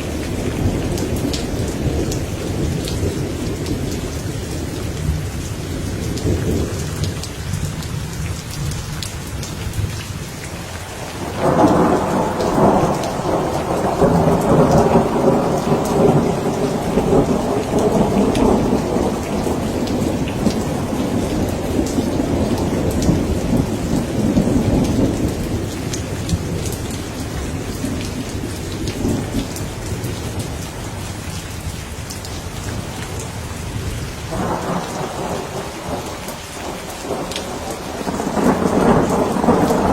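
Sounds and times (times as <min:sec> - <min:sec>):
heavy rain: 0:00.0 - 0:39.9
rolling thunder: 0:11.0 - 0:31.1, 0:32.7 - 0:39.9.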